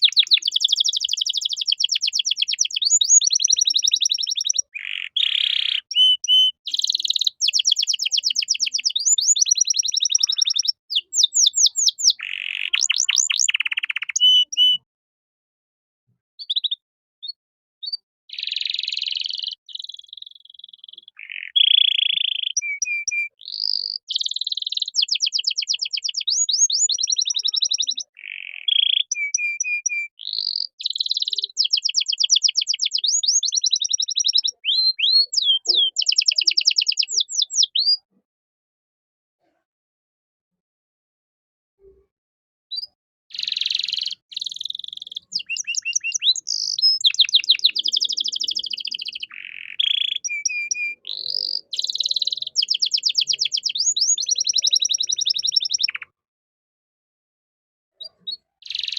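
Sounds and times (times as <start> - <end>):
canary singing trills: 0.0 - 14.9, 16.4 - 38.2, 42.7 - 56.2, 58.0 - 58.9.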